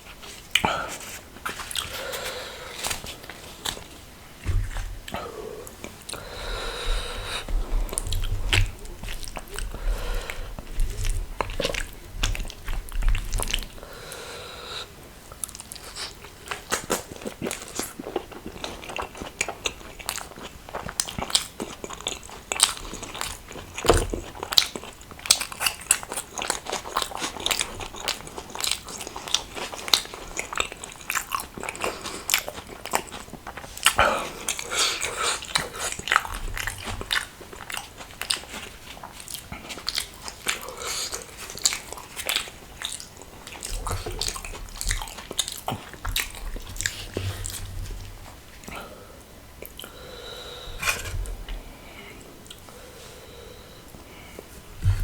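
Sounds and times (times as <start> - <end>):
person chewing food: 0.0 - 49.0.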